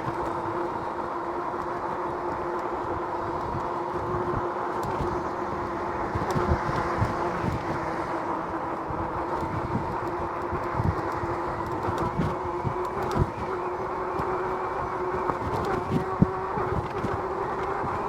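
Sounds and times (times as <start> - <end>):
electric motor whine: 0.0 - 18.0
wind buffeting: 2.9 - 18.0.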